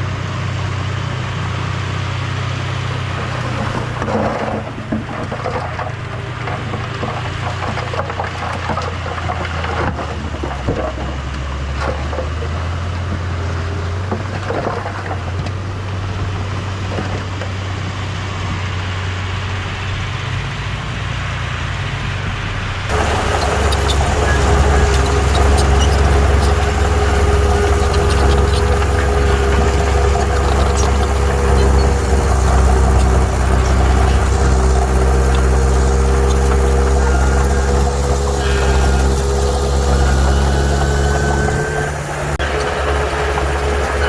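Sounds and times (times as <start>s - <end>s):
heavy machinery engine hum: 0.0s - 44.0s
metallic clanks: 22.9s - 44.0s.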